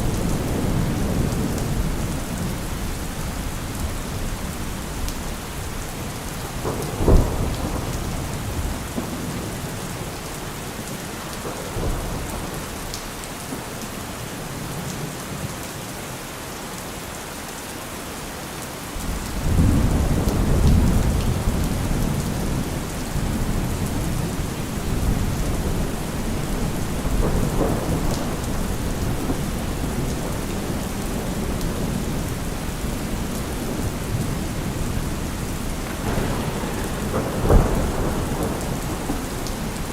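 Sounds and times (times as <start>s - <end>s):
low rumble of thunder: 0.0s - 13.2s, 19.0s - 39.9s
steady rain: 0.0s - 39.9s
sharp thunderclap: 19.4s - 39.9s.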